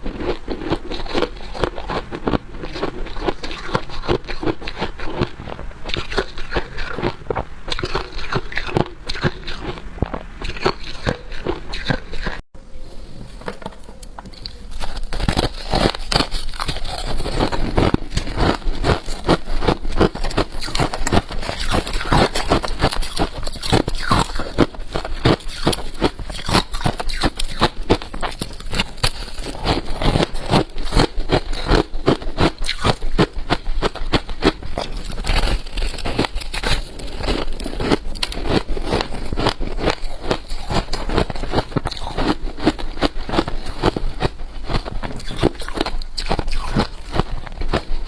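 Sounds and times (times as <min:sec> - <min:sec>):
frost being chewed: 0:00.0 - 0:12.4, 0:13.4 - 0:48.0.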